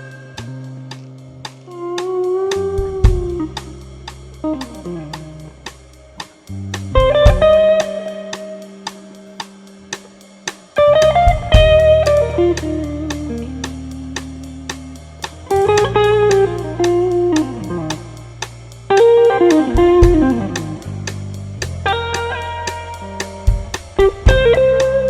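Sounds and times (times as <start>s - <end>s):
hi-hat beat: 0.0s - 25.0s
electric guitar solo: 1.7s - 3.8s, 6.9s - 8.9s, 10.8s - 14.8s, 15.4s - 18.2s, 18.9s - 21.0s, 21.8s - 25.0s
sustained low bass notes: 2.5s - 8.0s, 10.8s - 25.0s.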